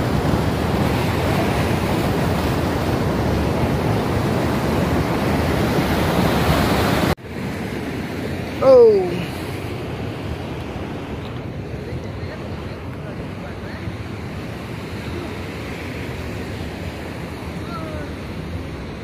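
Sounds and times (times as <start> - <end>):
person crying out: 8.6 - 9.3.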